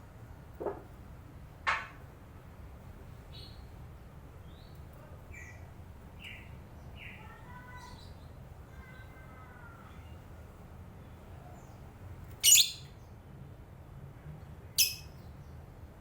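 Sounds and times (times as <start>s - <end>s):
bird whistles: 12.4s - 12.9s
lovebird chirping: 12.4s - 12.9s, 14.8s - 15.1s.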